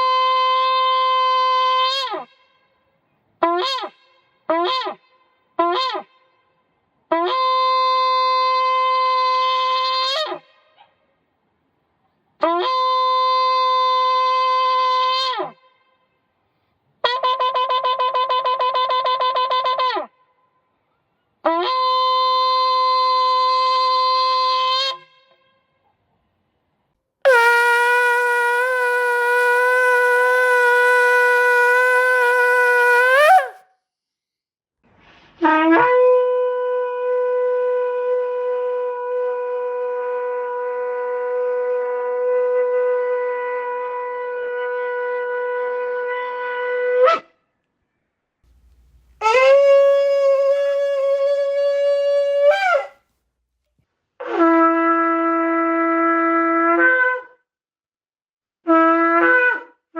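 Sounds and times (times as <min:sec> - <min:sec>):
shofar blasts: 0:27.3 - 0:33.6, 0:48.6 - 0:52.9.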